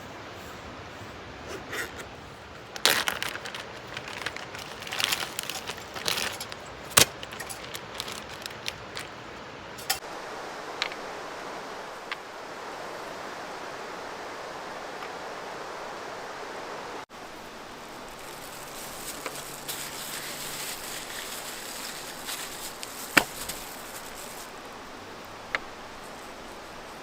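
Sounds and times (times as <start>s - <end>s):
hard objects clattering: 2.6s - 10.0s.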